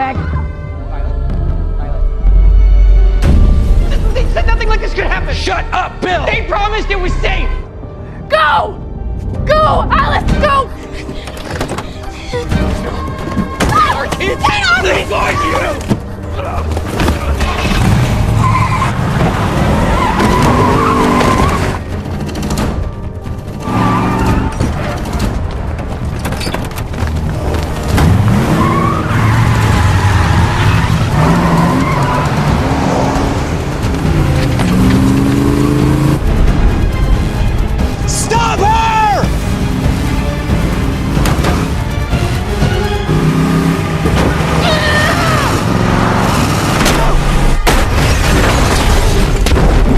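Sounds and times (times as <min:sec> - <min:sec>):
film score music: 0:00.0 - 0:49.9
tyres squealing: 0:11.1 - 0:22.3, 0:26.2 - 0:33.0
car engines revving: 0:16.8 - 0:22.6, 0:27.3 - 0:38.1, 0:39.2 - 0:47.7.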